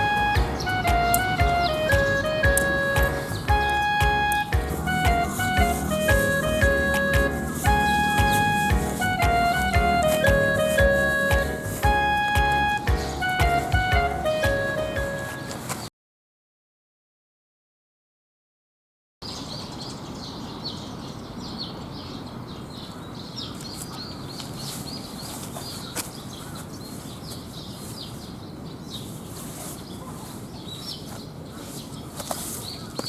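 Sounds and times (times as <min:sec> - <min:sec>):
small birds chirping: 0:00.0 - 0:15.8, 0:19.2 - 0:33.0
steady background hiss: 0:00.0 - 0:15.8.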